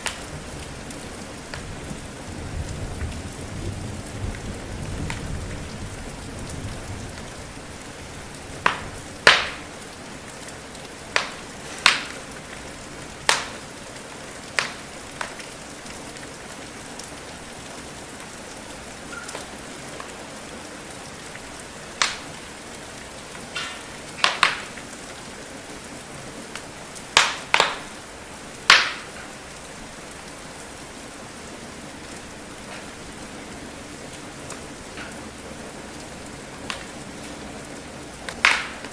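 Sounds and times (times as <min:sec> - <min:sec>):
steady rain hiss: 0:00.0 - 0:38.9
wood fire crackling: 0:00.0 - 0:38.9
low rumble of thunder: 0:00.2 - 0:09.2.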